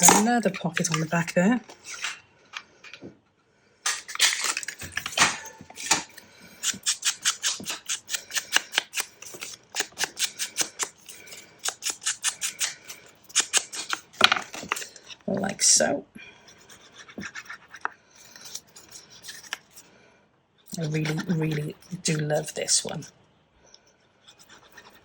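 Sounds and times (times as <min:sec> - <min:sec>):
scissors snipping paper: 0:03.9 - 0:15.0.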